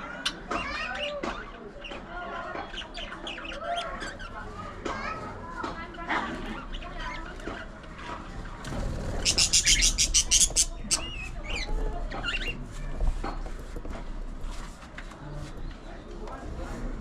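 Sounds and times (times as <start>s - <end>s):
budgerigars chattering and warbling: 8.8s - 12.6s.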